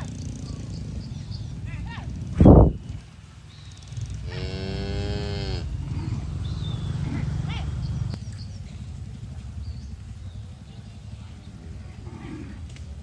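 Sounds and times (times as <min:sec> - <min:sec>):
low rumbling noise: 0:00.0 - 0:13.0
cow mooing: 0:04.2 - 0:08.2.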